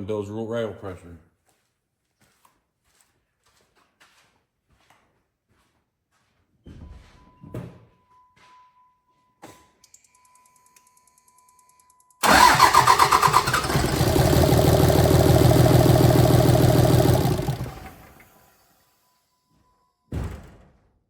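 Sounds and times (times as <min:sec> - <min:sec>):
diesel engine cranking and running: 0:12.2 - 0:18.3.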